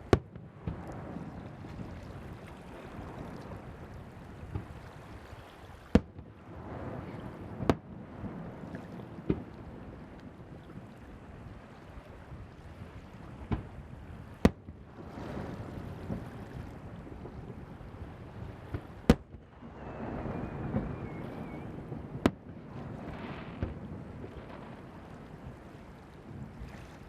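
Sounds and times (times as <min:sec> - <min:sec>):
waves: 0:00.0 - 0:27.0
wind on microphone: 0:00.0 - 0:27.0
fireworks bursting: 0:18.4 - 0:25.0.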